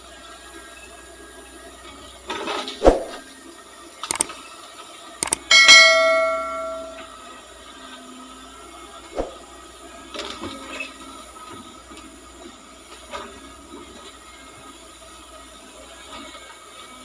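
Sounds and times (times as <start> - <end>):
sharp metallic clang: 5.2 - 7.1.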